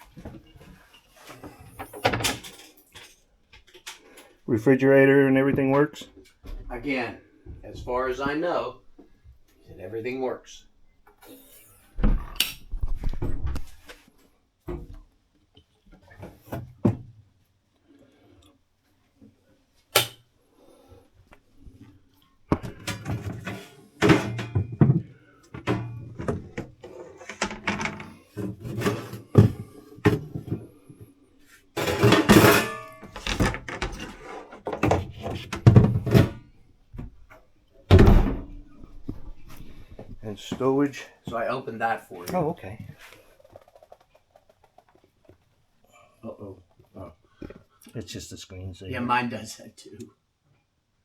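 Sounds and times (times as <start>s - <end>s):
cabinet doors knocking and clattering: 22.5s - 30.7s, 31.8s - 37.2s, 37.9s - 38.6s.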